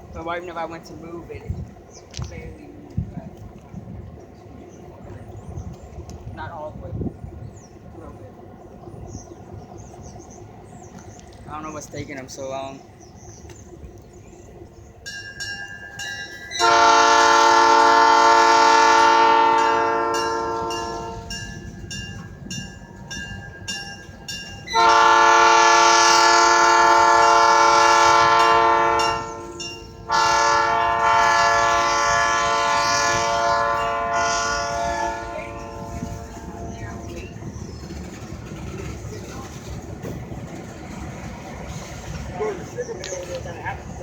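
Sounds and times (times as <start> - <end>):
locomotive air horn blasts: 16.5 - 21.4, 24.6 - 37.2.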